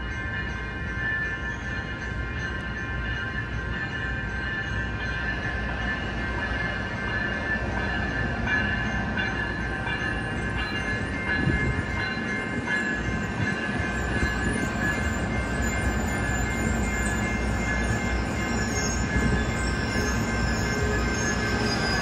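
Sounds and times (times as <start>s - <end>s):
high squeal of train wheels: 0.0s - 22.0s
train rumbling on rails: 0.0s - 22.0s.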